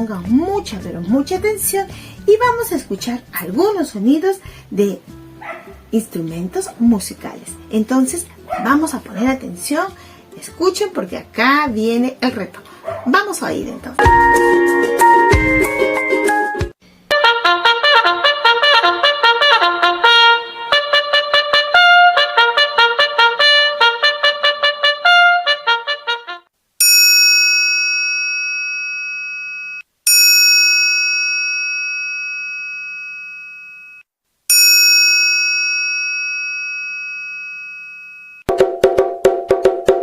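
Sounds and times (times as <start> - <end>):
trumpet playing short notes: 17.1 - 26.5
triangle ringing: 26.8 - 38.5.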